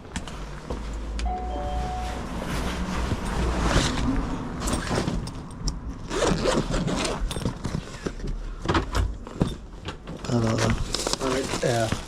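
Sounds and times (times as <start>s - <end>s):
zipper being pulled: 6.1s - 7.4s.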